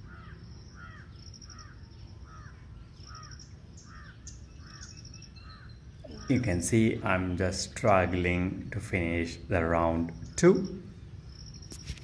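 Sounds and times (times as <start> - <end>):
bird calling: 0.0 - 12.0
insect chirping: 0.0 - 12.0.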